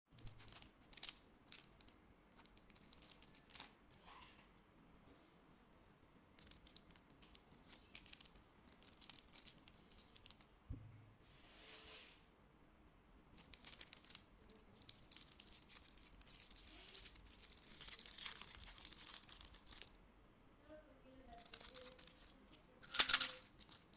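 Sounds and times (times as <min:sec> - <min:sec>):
wrappers tearing and crinkling: 0:00.2 - 0:03.8, 0:07.6 - 0:10.4, 0:13.3 - 0:19.9, 0:21.3 - 0:23.9.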